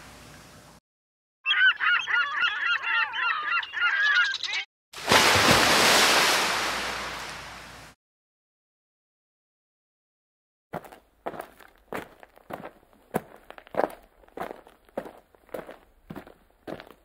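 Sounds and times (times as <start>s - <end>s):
flock of birds squawking: 1.5s - 4.7s
surf breaking: 5.0s - 8.0s.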